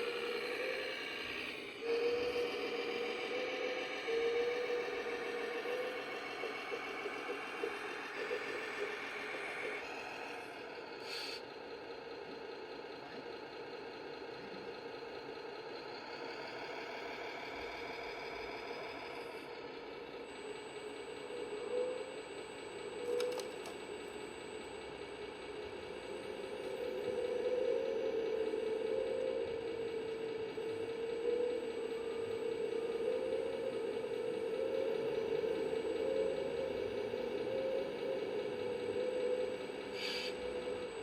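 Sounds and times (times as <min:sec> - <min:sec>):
model vehicle motor humming: 0:00.0 - 0:11.3
brief clicks: 0:23.1 - 0:23.8.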